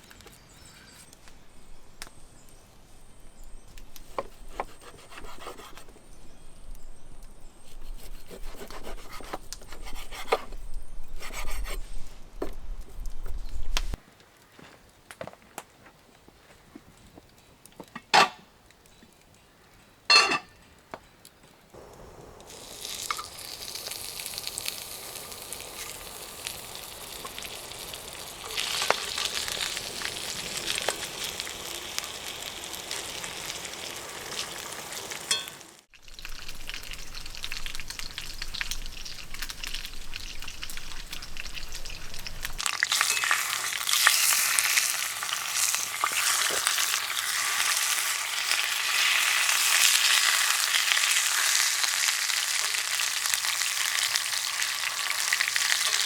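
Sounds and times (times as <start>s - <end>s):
food sizzling in a pan: 22.1s - 56.0s.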